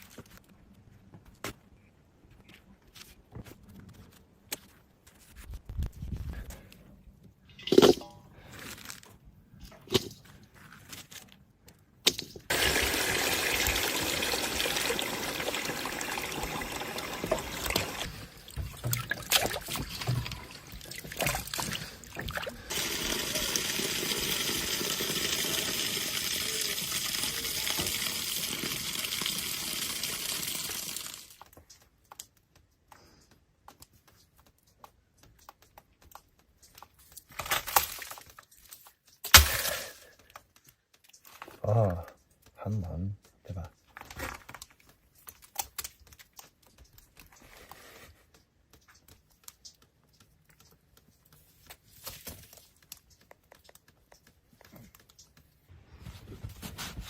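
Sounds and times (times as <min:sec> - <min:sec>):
water running: 0:12.5 - 0:31.4.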